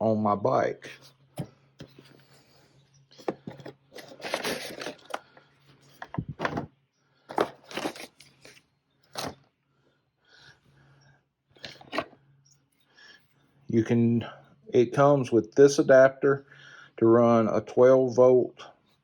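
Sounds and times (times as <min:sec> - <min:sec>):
rustling and crunching: 0:00.9 - 0:06.7, 0:07.3 - 0:09.5.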